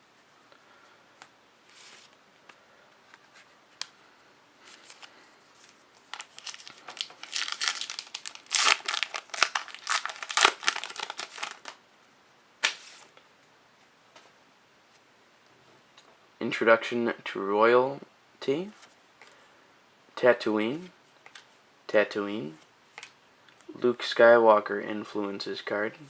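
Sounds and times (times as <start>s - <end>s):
wrapper tearing and crinkling: 4.8s - 11.8s.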